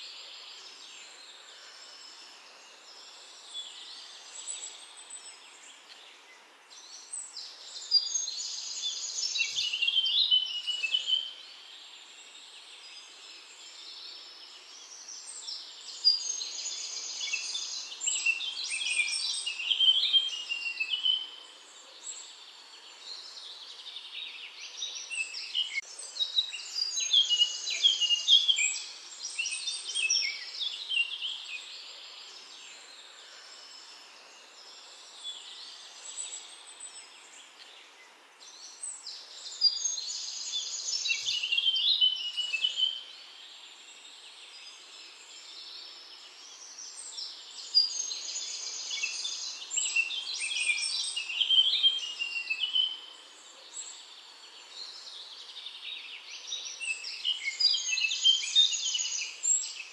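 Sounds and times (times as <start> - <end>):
faint steady hiss: 0.0 - 59.9
songbird singing: 0.0 - 59.9.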